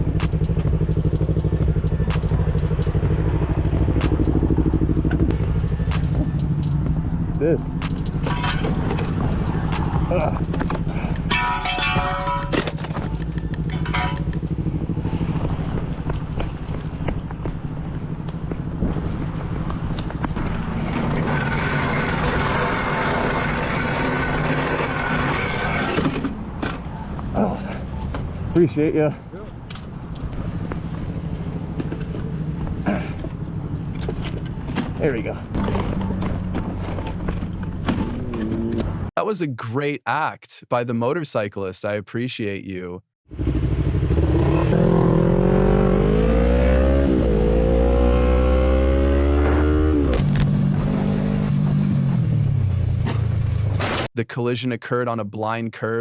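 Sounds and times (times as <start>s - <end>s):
motorcycle engine running: 0.0s - 11.4s, 12.1s - 25.1s, 30.4s - 39.1s, 43.3s - 46.2s.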